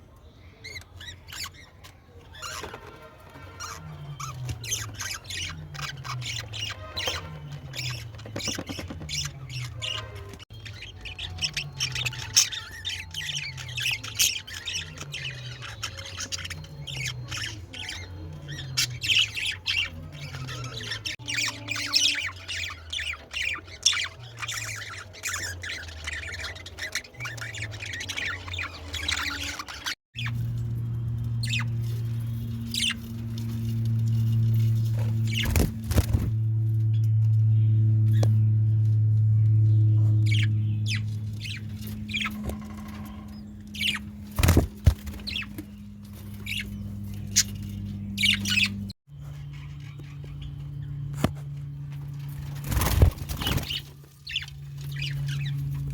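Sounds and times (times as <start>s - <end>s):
birds squawking and chirping: 0.0s - 55.9s
steady low hum: 30.2s - 55.9s
wing flaps: 33.0s - 36.5s, 44.1s - 46.4s, 52.2s - 54.0s.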